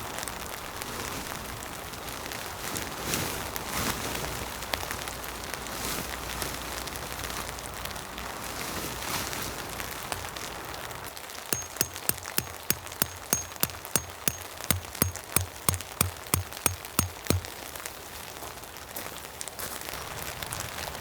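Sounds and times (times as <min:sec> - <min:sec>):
sharp knocks: 0:11.6 - 0:17.5.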